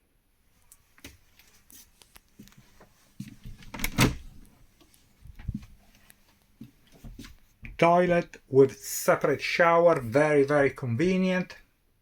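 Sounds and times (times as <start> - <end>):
door opening: 3.5 - 4.5.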